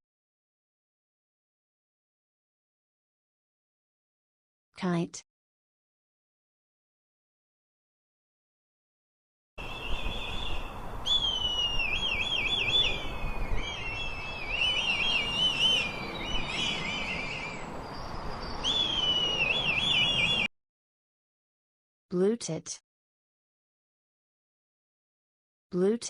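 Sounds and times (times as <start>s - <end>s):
kite calling: 9.6s - 17.7s.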